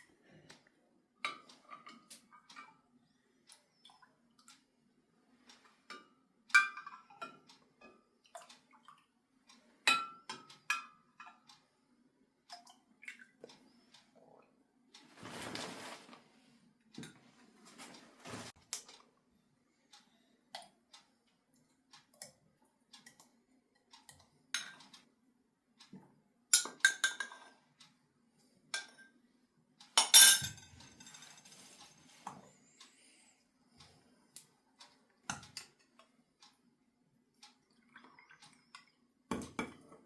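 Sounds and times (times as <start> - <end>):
dishes and utensils clinking: 26.6 - 27.5, 30.0 - 32.0.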